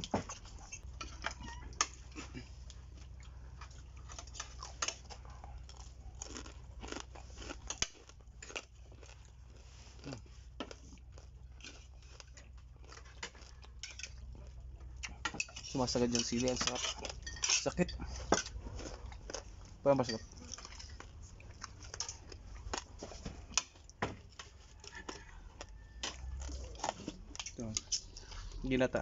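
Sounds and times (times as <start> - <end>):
person chewing crispy food: 0.0 - 29.0.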